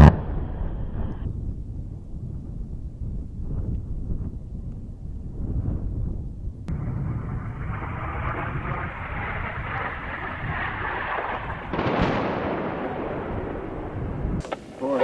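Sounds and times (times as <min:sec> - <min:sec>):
jet aircraft rumble: 0:00.0 - 0:04.5, 0:05.1 - 0:15.0
jet engine blast: 0:06.7 - 0:14.6.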